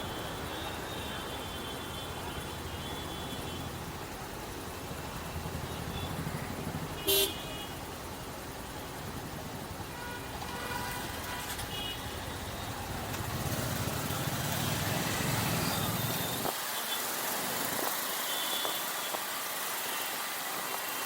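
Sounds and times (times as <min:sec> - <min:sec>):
motorcycle engine rumble: 0:00.0 - 0:16.5
wind and road noise: 0:03.6 - 0:21.0.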